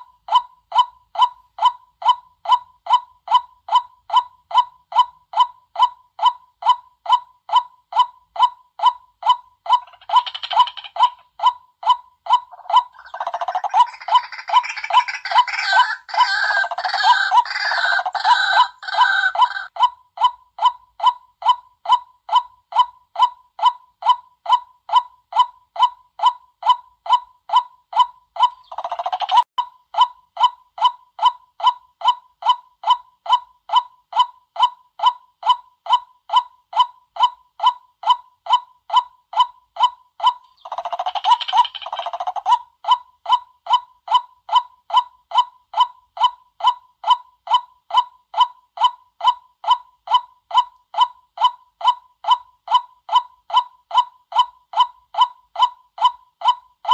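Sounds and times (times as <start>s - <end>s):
waterhen calling: 12.5s - 19.7s.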